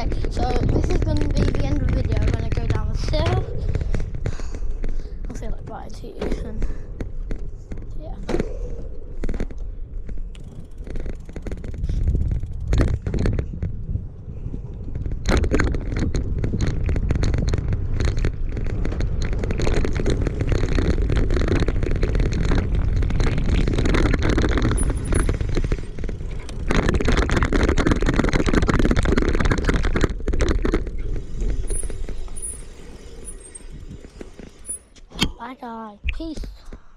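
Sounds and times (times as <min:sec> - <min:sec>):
bicycle rattling: 0:00.0 - 0:35.1
wind rushing over microphone: 0:00.0 - 0:35.4.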